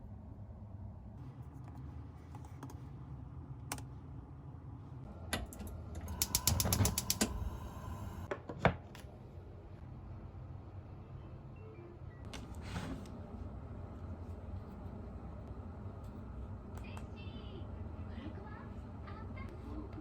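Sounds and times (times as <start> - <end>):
low room hum: 0.0 - 20.0
keyboard typing: 5.4 - 8.0.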